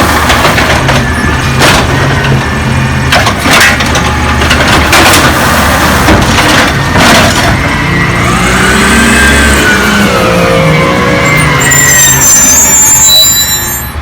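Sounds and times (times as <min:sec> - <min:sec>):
trash crashing: 0:00.0 - 0:08.0
garbage truck engine drone: 0:00.0 - 0:14.0
machinery whine: 0:00.1 - 0:14.0.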